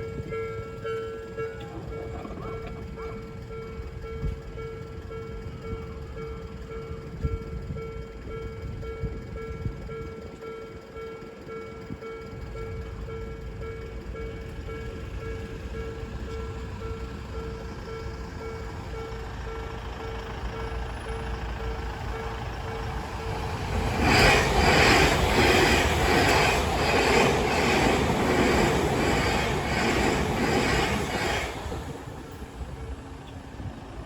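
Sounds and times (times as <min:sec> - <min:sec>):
level crossing warning bell: 0:00.0 - 0:33.0
rhythmic wheel clatter: 0:11.5 - 0:32.0
electric train rushing past: 0:12.0 - 0:34.0.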